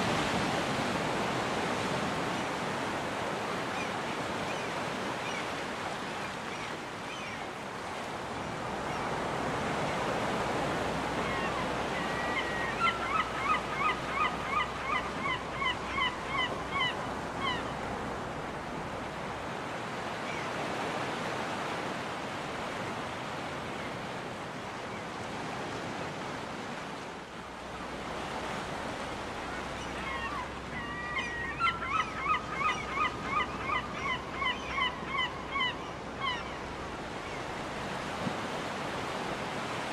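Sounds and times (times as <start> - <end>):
surf breaking on a beach: 0.0 - 14.4
seagulls calling: 11.1 - 17.8, 29.3 - 37.5.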